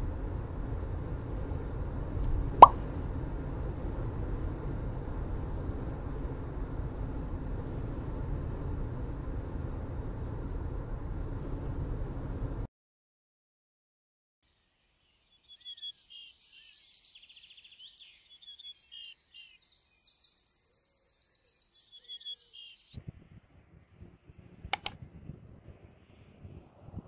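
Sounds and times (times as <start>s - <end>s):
songbird trilling and chirping: 15.4s - 22.9s
sharp click: 24.8s - 25.0s.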